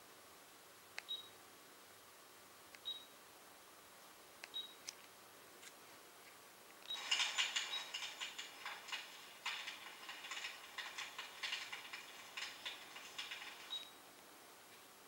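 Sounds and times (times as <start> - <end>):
crackling and clicking bursts: 6.9 - 14.2.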